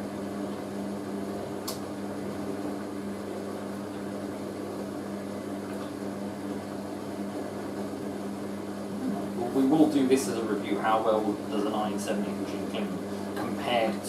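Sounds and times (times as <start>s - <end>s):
washing machine motor hum: 0.0s - 14.0s
sharp click: 1.6s - 1.8s.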